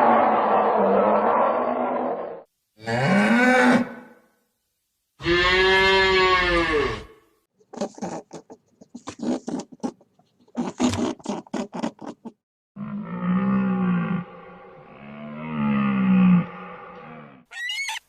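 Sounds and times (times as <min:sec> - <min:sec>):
cow mooing: 0:05.2 - 0:07.1, 0:12.8 - 0:17.5.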